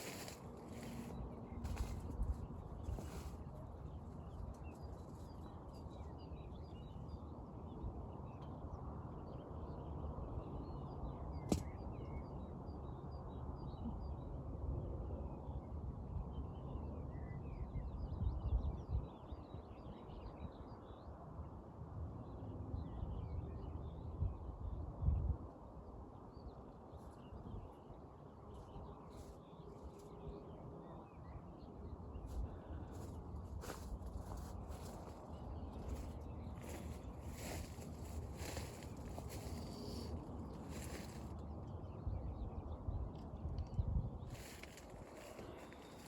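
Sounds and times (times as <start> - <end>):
birds chirping faintly: 26.9 - 46.0.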